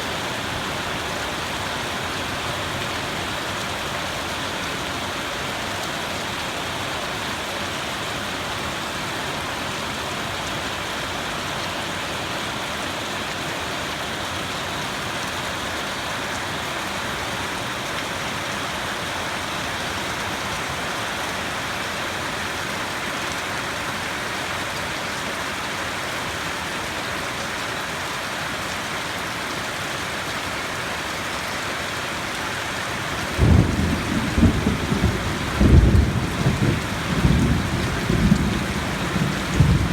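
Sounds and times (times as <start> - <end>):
steady rain falling: 0.0 - 39.9
loud thunder clap: 33.4 - 39.9.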